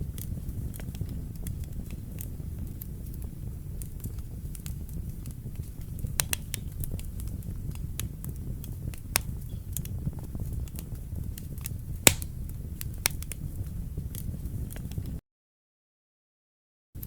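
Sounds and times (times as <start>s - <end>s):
fire crackling and snapping: 0.0s - 15.2s
low rumble of flames: 0.0s - 15.2s
sharp loud pop: 12.1s - 12.3s.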